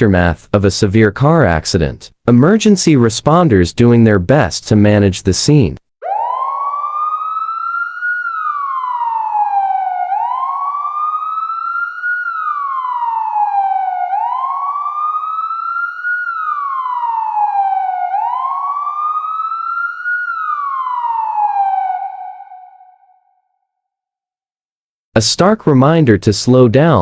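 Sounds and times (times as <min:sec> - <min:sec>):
emergency siren wailing: 0:06.0 - 0:23.4.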